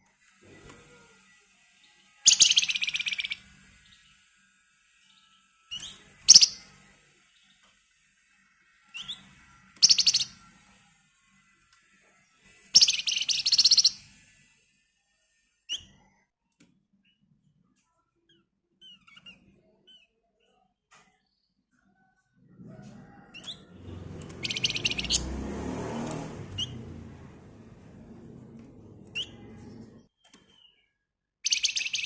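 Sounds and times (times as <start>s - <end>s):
songbird high rapid trilling: 2.3s - 3.5s, 6.2s - 6.6s, 9.8s - 10.3s, 12.8s - 14.0s, 24.2s - 25.4s, 31.5s - 32.0s.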